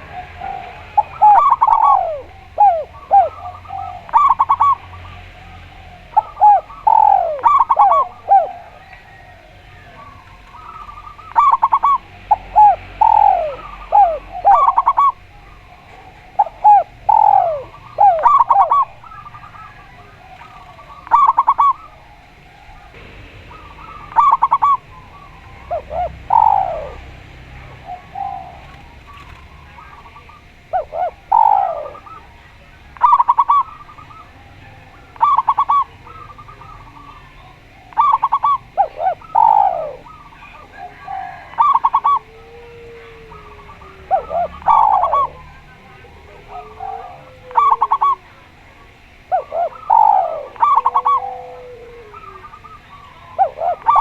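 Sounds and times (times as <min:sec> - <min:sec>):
doves cooing: 0:00.0 - 0:54.0.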